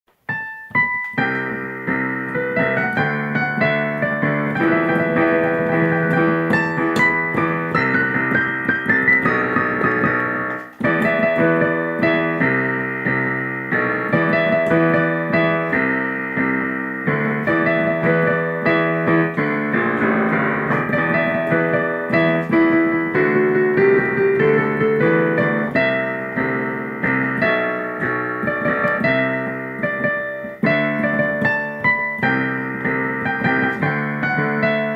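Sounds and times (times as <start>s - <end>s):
solo piano playing: 0.1s - 34.9s.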